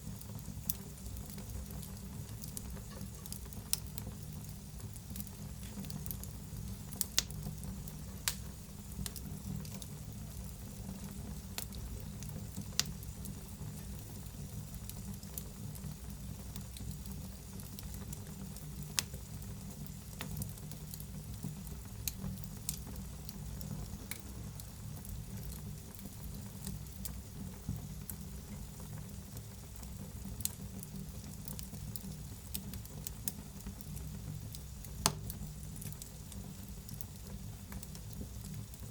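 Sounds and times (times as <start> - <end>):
wood fire crackling: 0.0 - 38.9
sharp pops from fire: 0.6 - 14.0, 16.7 - 24.3, 29.9 - 38.6.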